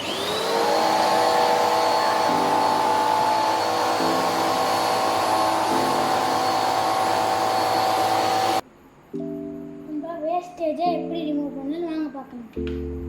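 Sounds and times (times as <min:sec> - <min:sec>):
vacuum cleaner motor whine: 0:00.0 - 0:08.6.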